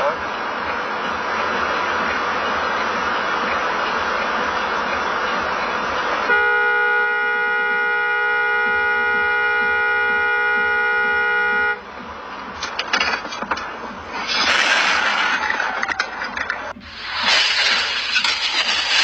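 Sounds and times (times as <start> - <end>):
road noise: 0.0 - 19.0
car horn held: 6.2 - 11.9.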